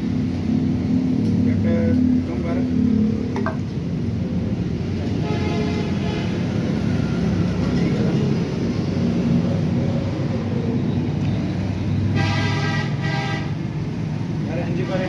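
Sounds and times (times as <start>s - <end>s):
traffic rumble: 0.0s - 15.0s
vehicle horn: 5.2s - 6.5s, 12.1s - 13.6s.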